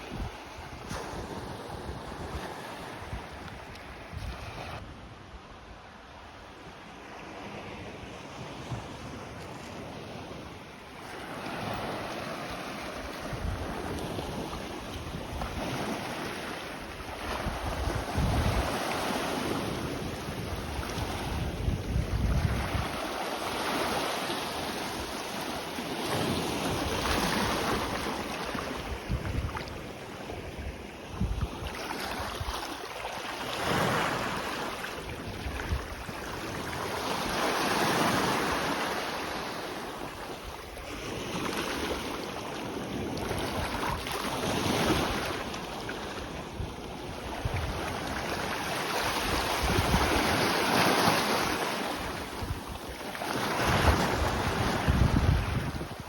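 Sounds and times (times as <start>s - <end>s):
small waves breaking on shore: 0.0s - 56.0s
wind gusting on microphone: 16.9s - 23.2s, 26.3s - 32.6s, 42.8s - 56.0s.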